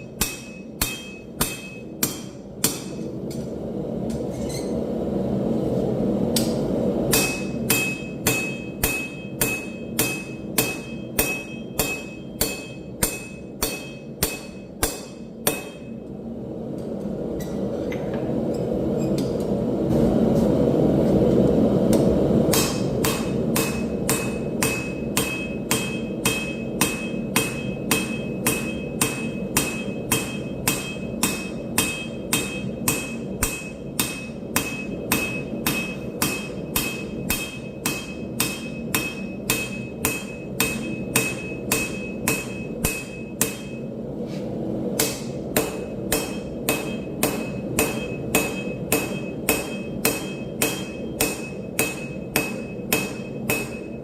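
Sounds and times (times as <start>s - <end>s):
hammer forging steel on anvil: 0.0s - 4.7s, 6.3s - 16.2s, 21.9s - 44.1s, 44.9s - 54.0s.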